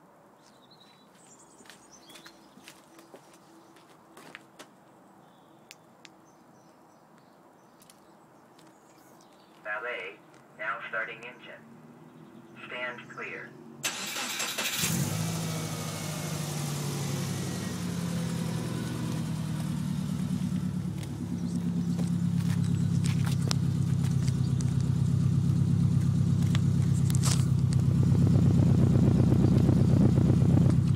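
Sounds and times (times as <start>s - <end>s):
car engine idling: 13.2s - 30.9s.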